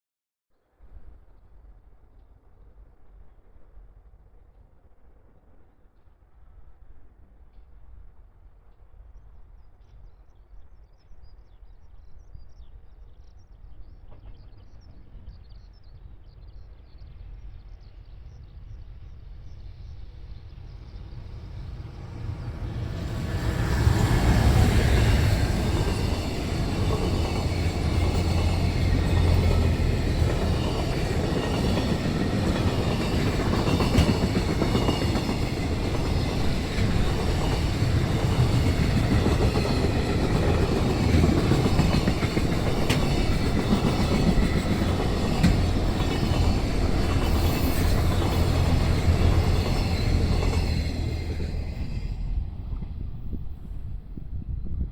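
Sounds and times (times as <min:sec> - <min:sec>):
electric locomotive passing: 0:17.0 - 0:54.8
wheels clattering on rails: 0:21.6 - 0:53.0.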